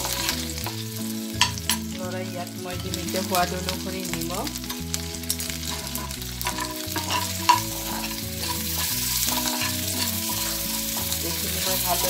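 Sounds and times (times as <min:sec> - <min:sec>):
prawns sizzling in oil: 0:00.0 - 0:12.0
spoon clinking on pan: 0:01.4 - 0:01.9, 0:04.7 - 0:11.8
metal spoon scraping pan: 0:04.6 - 0:12.0.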